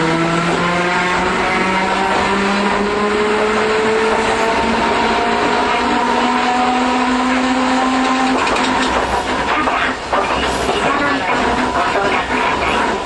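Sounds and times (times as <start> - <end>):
tram motors whining: 0.0 - 13.0
wheels rumbling on rail: 0.0 - 13.0.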